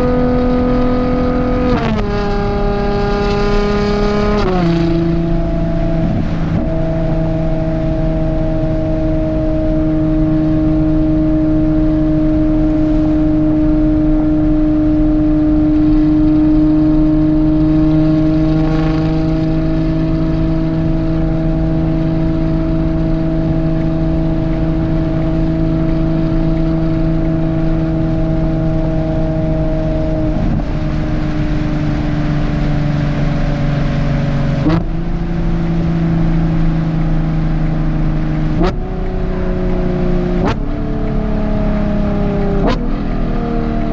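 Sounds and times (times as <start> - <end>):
car engine running steadily: 0.0 - 43.9.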